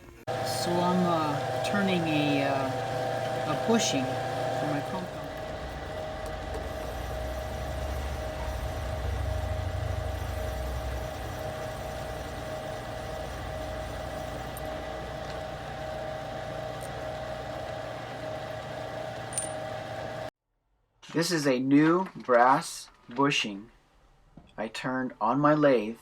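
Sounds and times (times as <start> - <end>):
metal lathe motor hum: 0.3 - 20.3.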